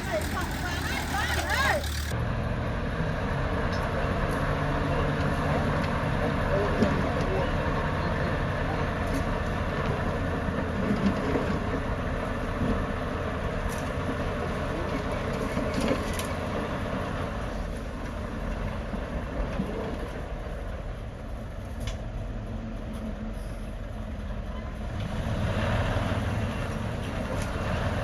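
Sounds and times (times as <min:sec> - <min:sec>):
track noise: 0:00.0 - 0:02.2
bulldozer diesel engine under load: 0:00.0 - 0:28.0.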